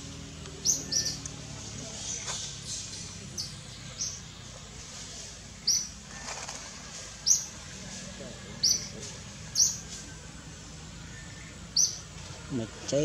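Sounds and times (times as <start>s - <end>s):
bird chirping: 0.1s - 4.6s, 5.5s - 6.1s, 7.2s - 7.6s, 8.6s - 13.0s.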